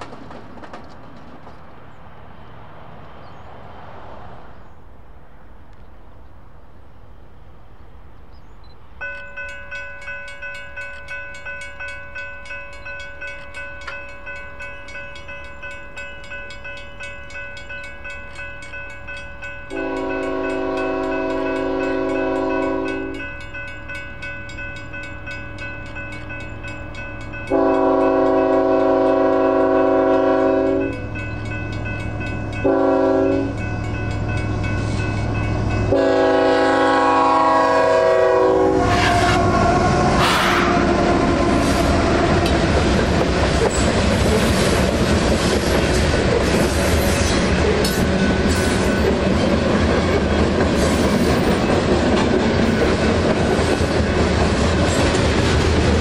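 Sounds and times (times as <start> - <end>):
train wheels clattering: 0.0 - 1.8, 41.0 - 56.0
crossing bells ringing: 9.0 - 38.6, 46.9 - 55.2
locomotive horn blasts: 19.7 - 23.3, 27.5 - 31.1, 32.6 - 33.7, 35.8 - 42.4.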